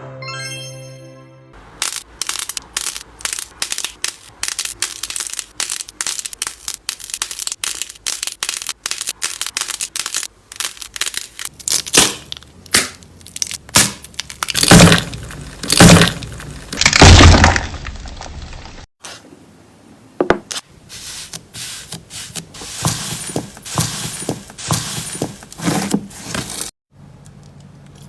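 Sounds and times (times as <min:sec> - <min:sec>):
crunchy slime crackling: 0:01.8 - 0:18.8.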